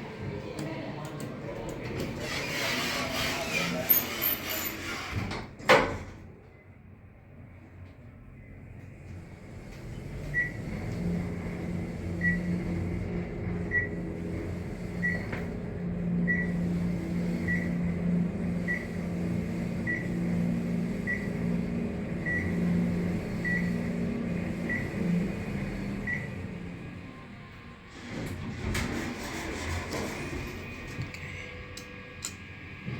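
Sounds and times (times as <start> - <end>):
elevator humming: 7.3 - 32.9.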